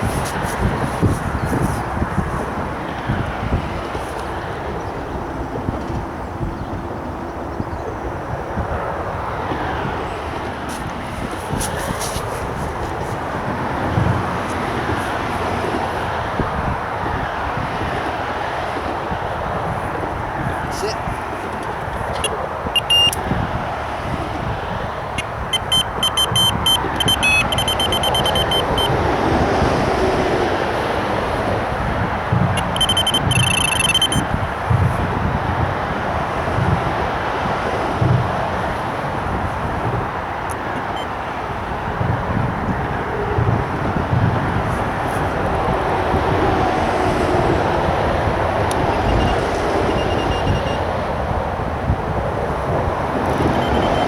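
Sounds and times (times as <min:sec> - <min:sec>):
heavy vehicles rumbling: 0:00.0 - 0:54.0
road traffic noise: 0:00.0 - 0:54.0
short high electronic beeps: 0:22.2 - 0:23.2, 0:25.2 - 0:28.9, 0:32.6 - 0:34.2, 0:53.5 - 0:54.0.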